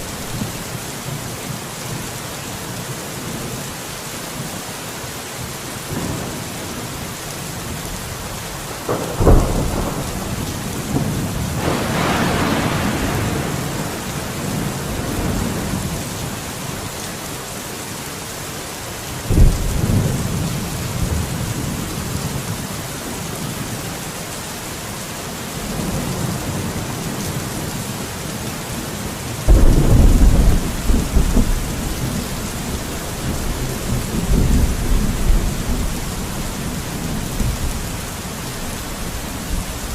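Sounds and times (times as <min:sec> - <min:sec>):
steady rain falling: 0:00.0 - 0:39.9
thunder rolling: 0:08.8 - 0:15.8, 0:29.5 - 0:37.9.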